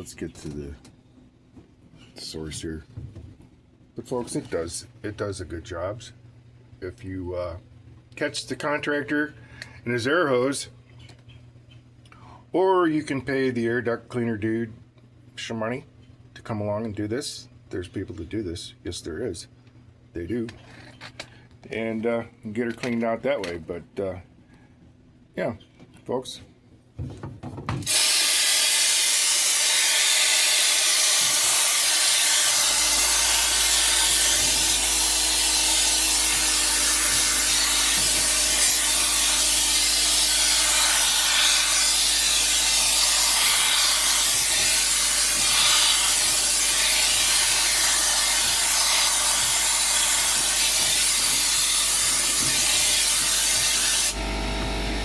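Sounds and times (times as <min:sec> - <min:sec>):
compressed air hissing: 0:27.9 - 0:54.2.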